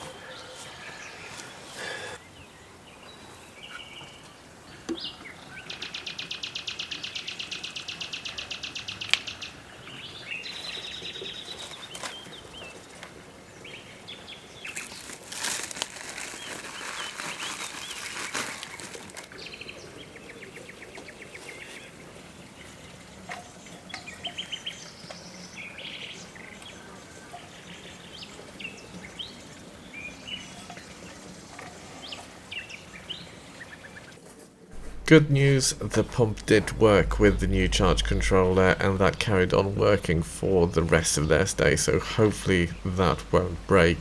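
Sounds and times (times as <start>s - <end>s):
rustling noise: 14.7s - 19.4s.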